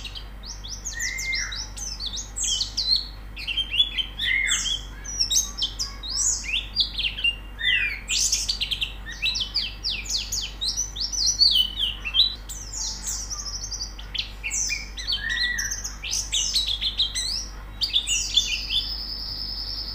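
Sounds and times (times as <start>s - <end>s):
birds twittering: 0.0s - 19.9s.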